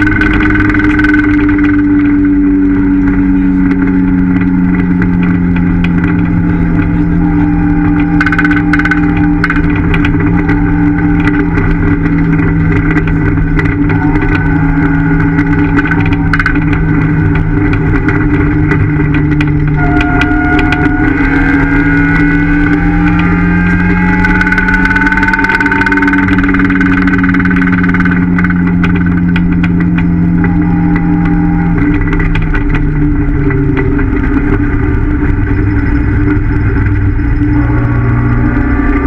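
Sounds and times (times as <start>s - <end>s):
car engine pulling hard: 0.0s - 39.0s.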